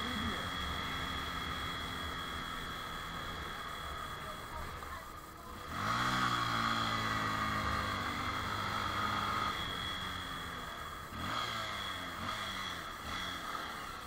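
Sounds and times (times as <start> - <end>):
motorcycle engine: 0.0 - 14.0.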